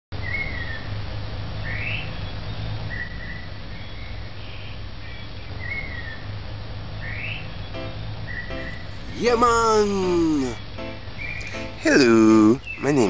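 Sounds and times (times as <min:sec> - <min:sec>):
birds whistling calls: 0:11.2 - 0:13.0.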